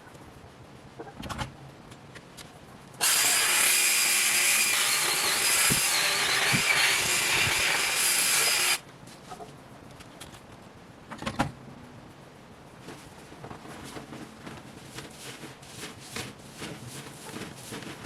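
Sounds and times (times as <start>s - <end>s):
power tool whining: 3.0s - 8.8s.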